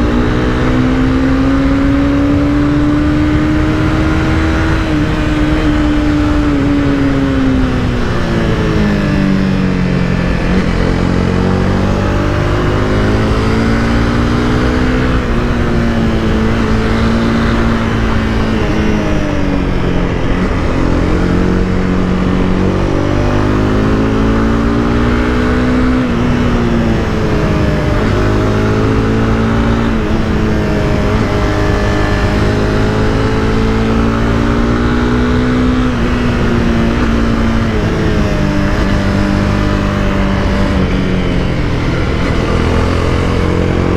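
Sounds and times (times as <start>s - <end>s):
motorcycle engine accelerating: 0.0s - 43.9s
wind and road noise: 0.0s - 43.9s.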